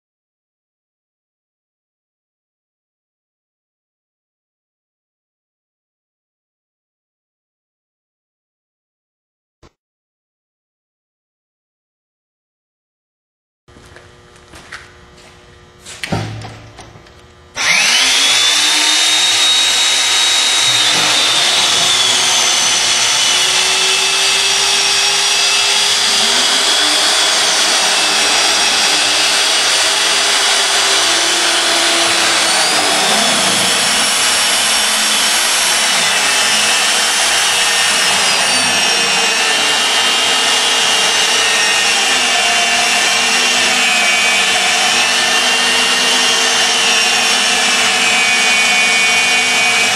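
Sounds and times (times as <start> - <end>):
drill motor whine: 17.6 - 49.9.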